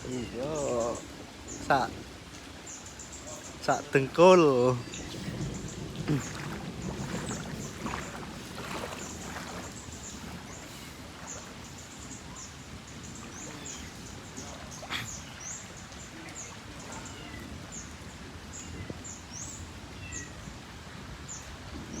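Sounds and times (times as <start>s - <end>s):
small birds chirping: 0.0s - 20.5s
outdoor background noise: 0.0s - 22.0s.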